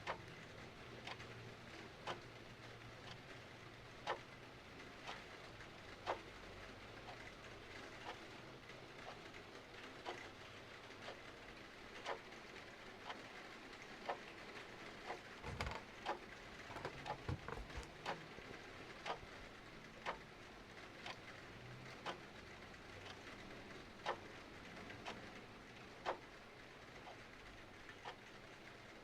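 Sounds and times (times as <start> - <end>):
clock ticking: 0.0 - 0.3, 4.0 - 4.3, 5.0 - 6.3, 12.0 - 12.3, 14.0 - 19.3, 20.0 - 20.3, 21.0 - 21.4, 23.0 - 24.4, 26.0 - 26.3.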